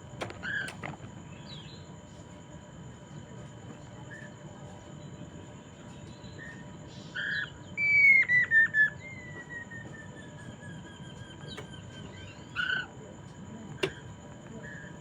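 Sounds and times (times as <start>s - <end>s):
bird singing whistled phrase: 7.2s - 10.4s.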